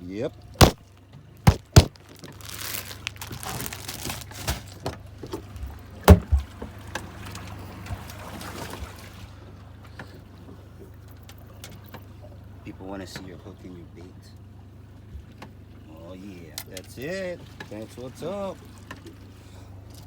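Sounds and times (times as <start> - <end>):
boat engine hum: 0.0 - 20.0
handling clicks and knocks: 0.6 - 6.7.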